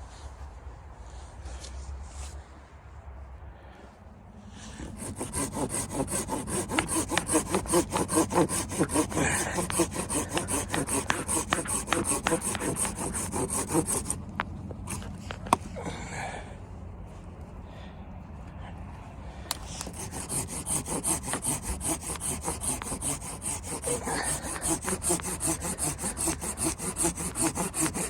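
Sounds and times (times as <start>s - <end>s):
hand saw cutting wood: 4.6s - 15.7s, 19.5s - 28.0s.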